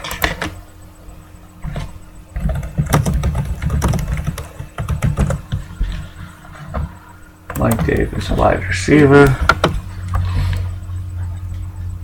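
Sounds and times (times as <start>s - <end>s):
computer keyboard typing: 2.3s - 5.6s, 7.5s - 8.5s.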